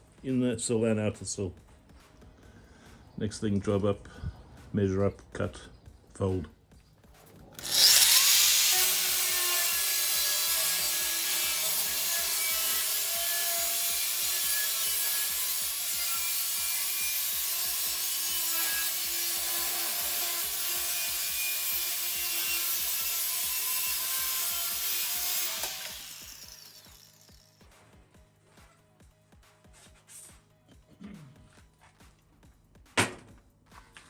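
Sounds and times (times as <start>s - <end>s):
power tool cutting sheet steel: 7.6s - 27.5s.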